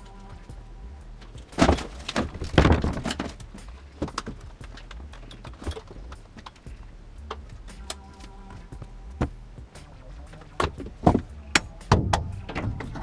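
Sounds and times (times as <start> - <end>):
heavy clatter: 1.2 - 7.9
equipment thumping and knocking: 1.3 - 7.4, 10.3 - 13.0.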